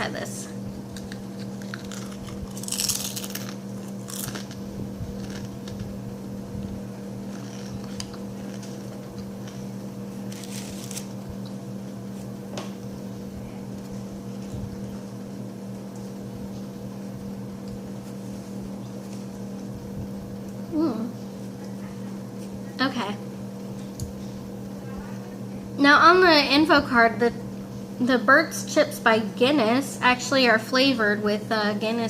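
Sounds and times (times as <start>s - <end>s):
low electrical hum: 0.0s - 32.0s
crisp being bitten and chewed: 0.8s - 5.9s, 10.2s - 11.6s.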